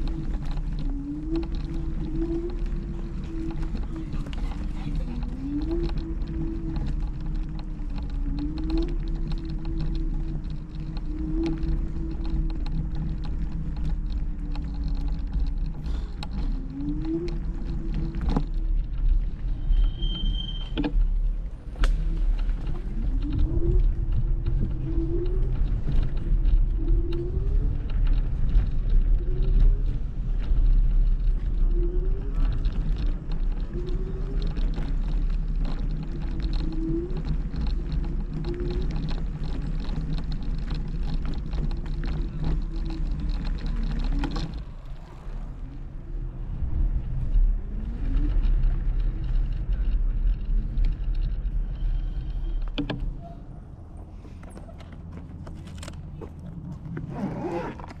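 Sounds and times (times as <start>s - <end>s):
scooter riding rumble: 0.0s - 58.0s
wind: 0.0s - 58.0s
short rising squeak: 19.6s - 20.9s.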